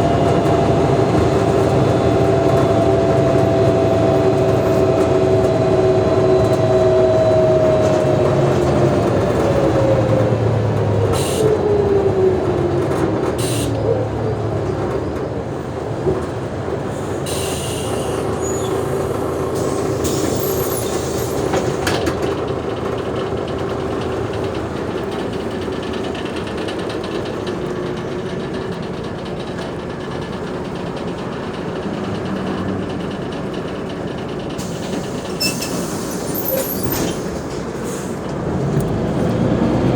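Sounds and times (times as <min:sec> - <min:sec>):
bus drivetrain whine: 0:00.0 - 0:39.9.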